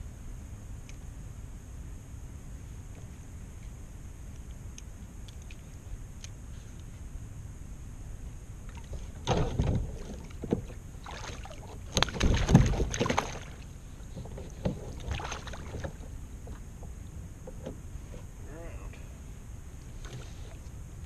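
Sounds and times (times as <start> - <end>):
water sloshing around kayak: 8.6 - 17.8
knocks against hull: 8.9 - 17.8.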